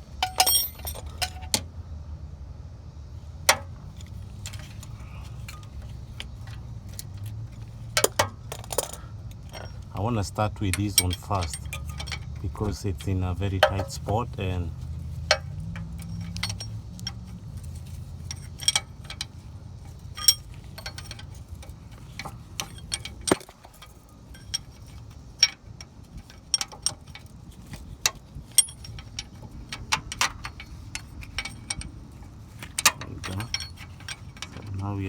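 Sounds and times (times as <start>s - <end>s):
wrench clicking against bolt: 28.1s - 32.0s.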